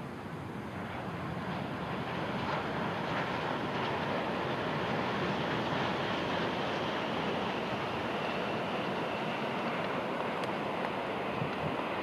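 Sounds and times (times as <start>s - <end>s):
high-speed trains rushing past: 0.0s - 12.0s.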